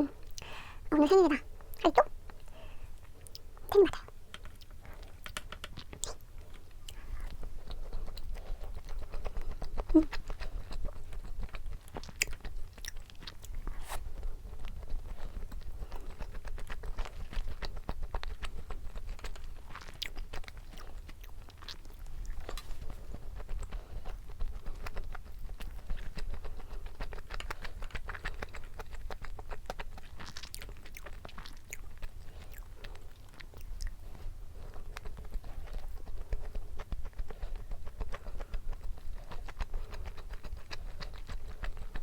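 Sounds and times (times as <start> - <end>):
person chewing food: 0.0 - 42.0.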